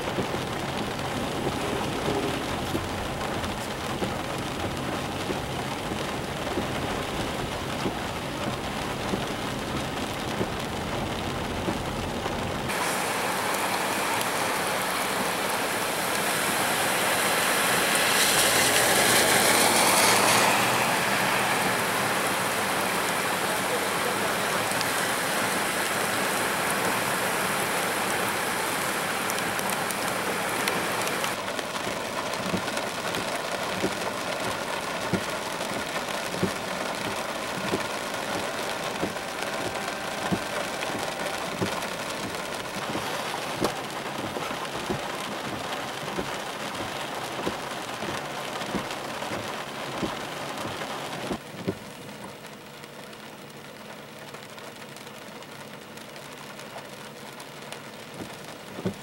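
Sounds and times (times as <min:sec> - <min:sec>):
raindrops ticking: 0:00.0 - 0:16.3, 0:17.6 - 0:59.0
heavy rain pouring: 0:00.0 - 0:59.0
vehicles splashing through water: 0:00.0 - 0:59.0.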